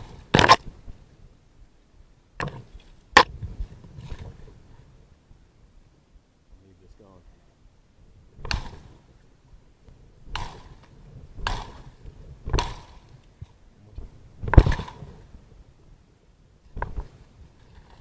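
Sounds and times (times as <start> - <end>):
machete chopping into wood: 0.4 - 0.6, 8.5 - 8.8, 11.4 - 11.8, 12.5 - 12.9.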